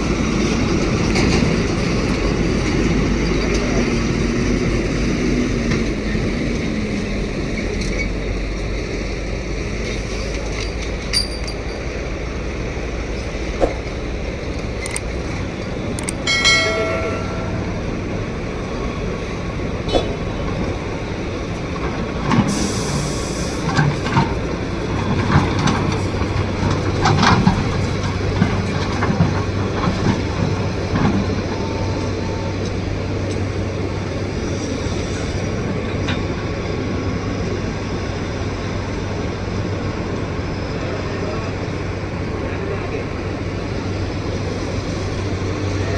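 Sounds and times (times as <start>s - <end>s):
excavator diesel engine running: 0.0s - 45.9s
brief pitched tone: 16.3s - 18.1s.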